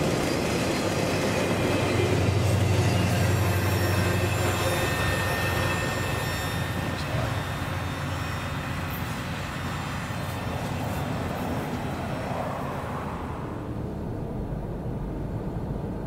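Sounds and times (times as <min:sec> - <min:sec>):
freight train cars rolling: 0:00.0 - 0:12.2.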